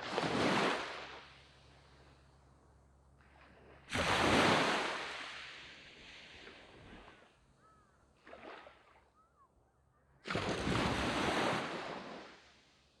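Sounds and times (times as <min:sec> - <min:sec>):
wave breaking on beach: 0:03.9 - 0:06.5
wave washing up sand: 0:03.9 - 0:06.7.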